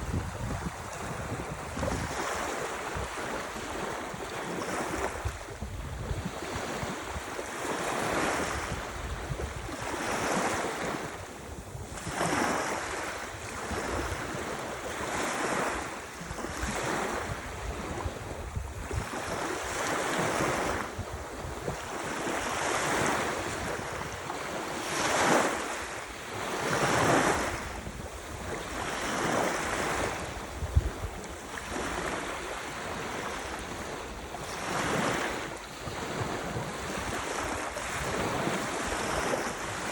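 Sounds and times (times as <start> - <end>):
wind rumble on microphone: 0.0 - 39.9
ocean waves washing in: 9.6 - 39.9.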